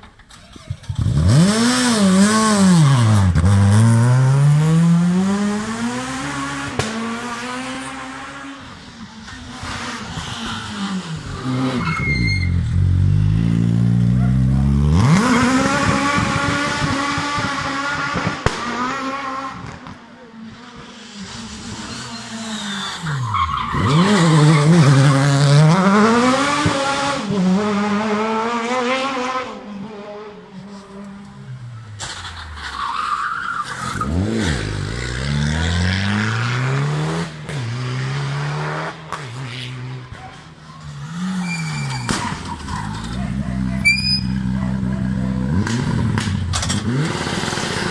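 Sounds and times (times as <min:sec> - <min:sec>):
rally car engines revving: 0:00.1 - 0:47.9.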